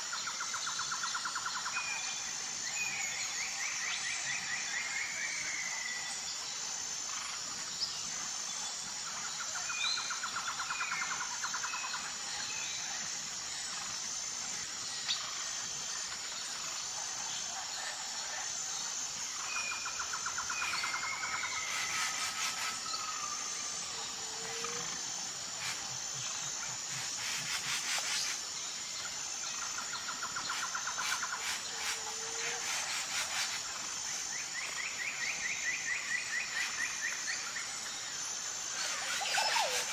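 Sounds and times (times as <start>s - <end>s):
insect chorus pulsing: 0.0s - 39.9s
fast trilling birdsong: 38.8s - 39.9s.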